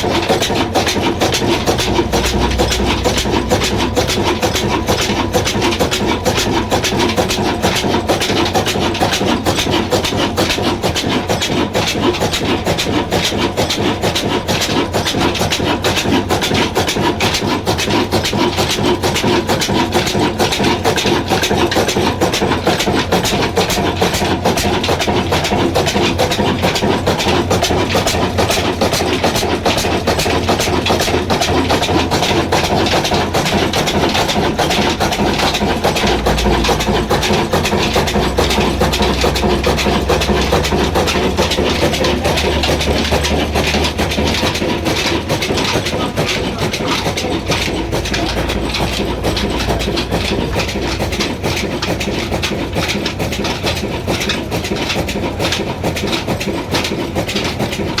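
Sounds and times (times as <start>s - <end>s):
diesel engine clattering: 0.0s - 58.0s.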